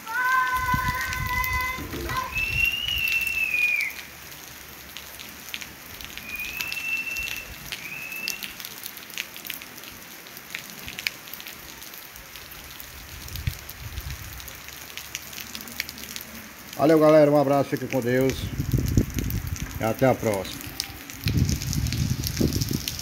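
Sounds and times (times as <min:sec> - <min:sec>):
rain on wet pavement: 0:00.0 - 0:23.0
thin high whistling tone: 0:02.3 - 0:04.0, 0:06.3 - 0:08.5.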